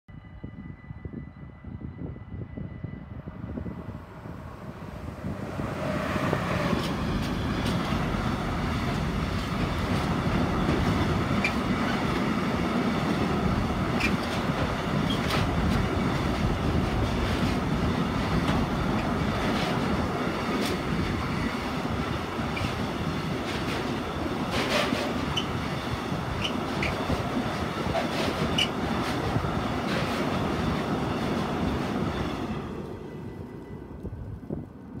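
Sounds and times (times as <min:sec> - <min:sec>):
freight train passing: 0:00.1 - 0:35.0
wheels rumbling on rail: 0:00.1 - 0:35.0
high wheel squeals: 0:09.7 - 0:12.2, 0:25.0 - 0:27.2, 0:28.1 - 0:28.9
wheels clicking over rail joints: 0:22.2 - 0:25.6.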